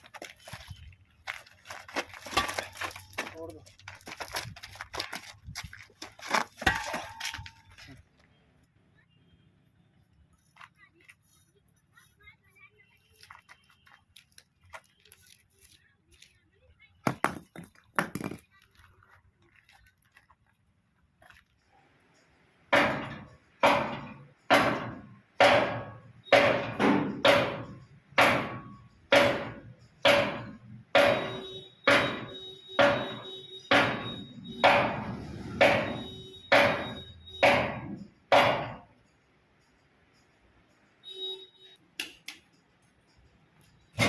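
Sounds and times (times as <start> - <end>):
sharp ringing knocks: 22.7 - 39.1
steady ringing tone: 27.4 - 41.8.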